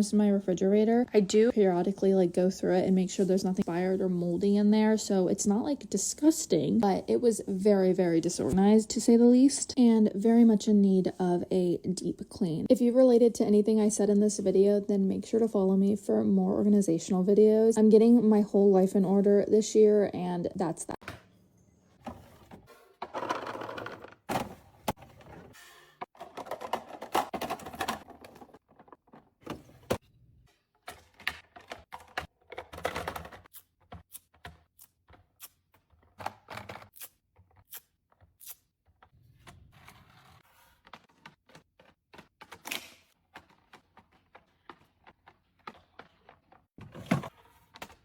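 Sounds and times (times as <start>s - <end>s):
containers clicking and knocking: 26.1s - 29.7s.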